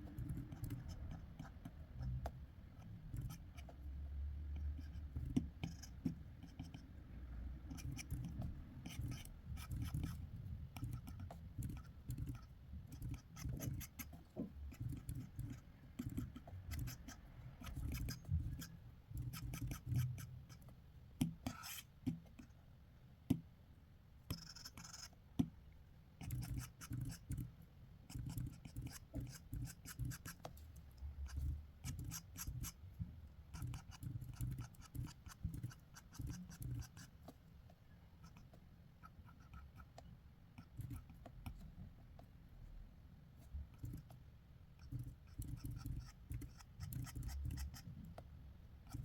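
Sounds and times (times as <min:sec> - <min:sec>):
pencil sketching on paper: 0:07.7 - 0:20.6, 0:31.2 - 0:32.8, 0:33.5 - 0:37.1.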